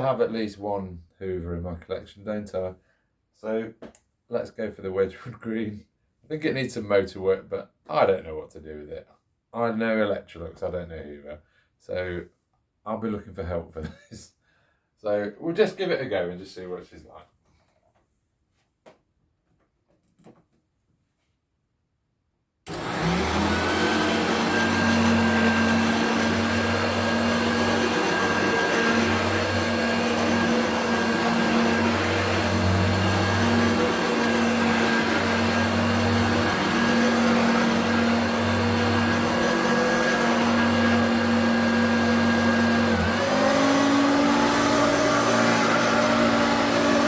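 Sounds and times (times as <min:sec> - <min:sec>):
upright vacuum cleaner running: 0:22.7 - 0:47.0.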